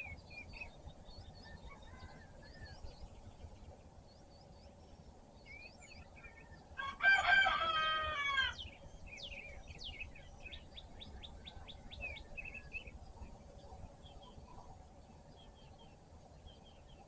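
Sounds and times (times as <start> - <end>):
songbirds chirping: 0.0 - 17.0
rooster crowing: 6.8 - 8.6.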